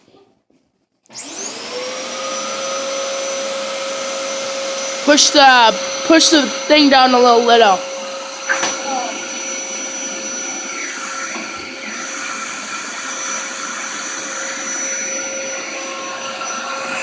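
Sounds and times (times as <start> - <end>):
vacuum cleaner running: 1.1 - 17.0.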